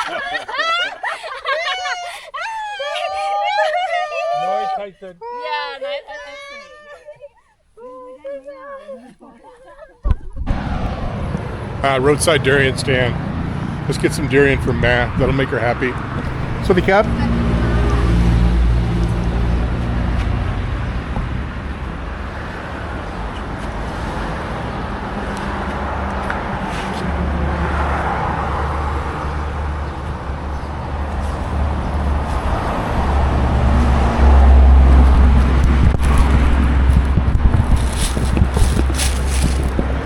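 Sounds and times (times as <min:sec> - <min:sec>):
vehicle engine and road noise: 0:10.4 - 0:40.0.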